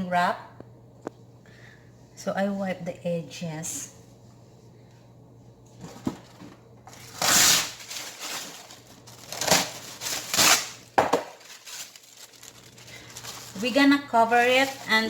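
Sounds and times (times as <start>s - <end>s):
rustling and crinkling: 5.7s - 15.0s.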